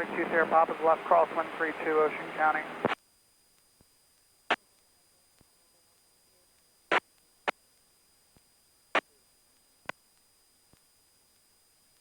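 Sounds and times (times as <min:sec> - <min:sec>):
radio transmitter clicks: 0:02.8 - 0:03.9.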